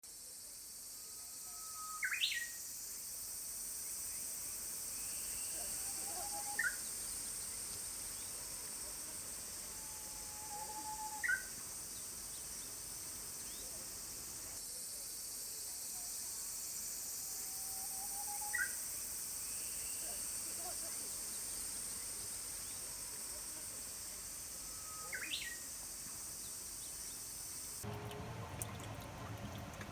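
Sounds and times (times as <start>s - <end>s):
steady high hiss: 0.1s - 27.9s
bird singing: 1.5s - 2.6s, 5.0s - 8.4s, 9.8s - 12.7s, 18.0s - 18.8s, 24.8s - 25.7s.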